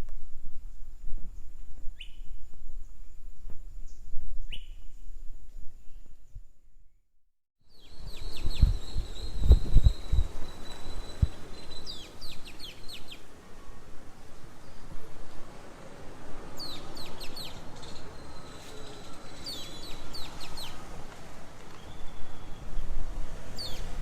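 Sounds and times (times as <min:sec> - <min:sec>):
background hiss: 0:07.7 - 0:24.0.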